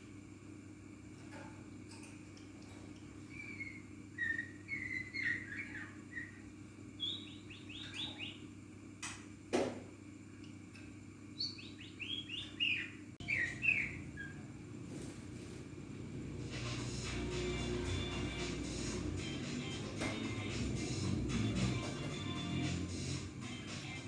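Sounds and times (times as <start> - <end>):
songbird chirping and singing: 3.0 - 8.5, 11.3 - 14.7, 16.6 - 24.0.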